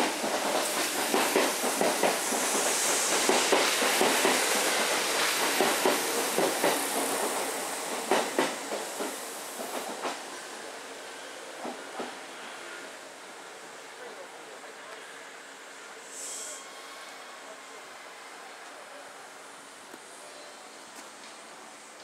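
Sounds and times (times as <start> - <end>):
train wheels clacking on rails: 0.0 - 10.3, 11.6 - 12.2
train rushing noise: 0.0 - 13.9.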